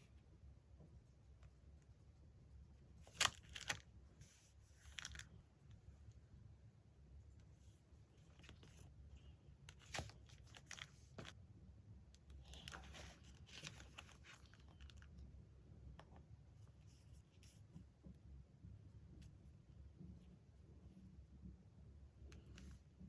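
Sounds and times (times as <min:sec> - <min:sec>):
paper rustling and crinkling: 0:03.0 - 0:05.4, 0:09.7 - 0:11.4, 0:12.4 - 0:15.1.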